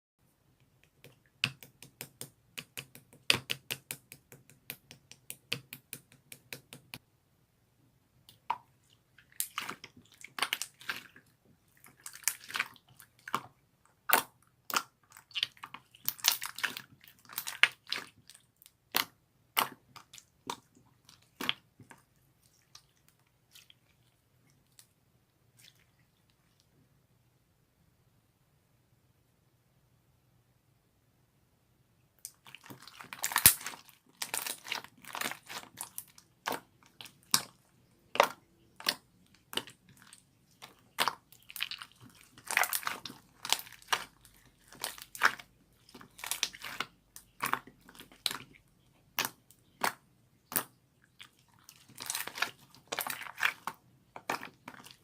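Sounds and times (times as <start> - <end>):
slime squishing and popping: 32.3 - 48.5, 49.1 - 50.7, 51.6 - 55.0.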